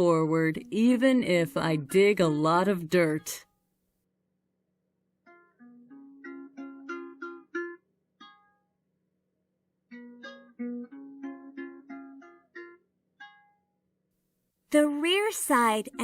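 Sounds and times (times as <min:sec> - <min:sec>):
plucked-string tune: 0:05.2 - 0:09.0, 0:09.8 - 0:13.9, 0:14.7 - 0:16.0.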